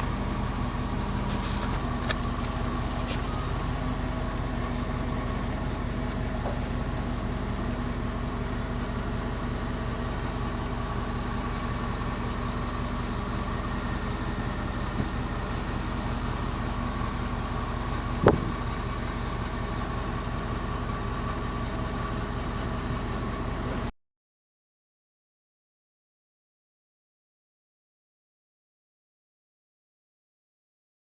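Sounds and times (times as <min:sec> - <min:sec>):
vehicle engine idling hum: 0:00.0 - 0:23.9.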